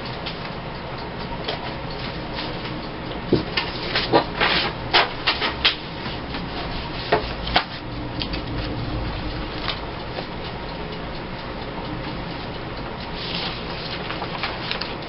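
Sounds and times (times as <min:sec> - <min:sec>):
steady low hum: 0:00.0 - 0:15.0
paper rustling: 0:13.2 - 0:15.0.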